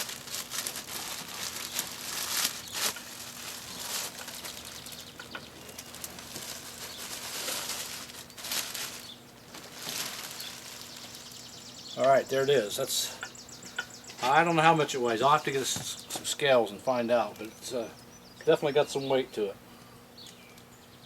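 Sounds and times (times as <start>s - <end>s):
bubble wrap and foam crinkling: 0.0s - 11.7s.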